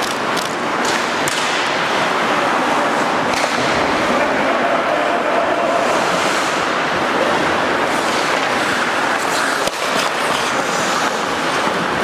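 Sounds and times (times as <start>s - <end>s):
skate blades scraping ice: 5.8s - 12.0s.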